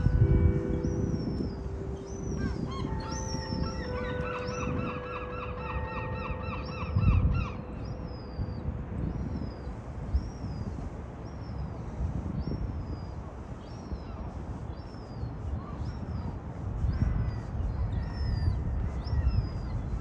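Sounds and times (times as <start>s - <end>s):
low rumble: 0.0s - 10.8s
birds calling: 0.0s - 20.0s.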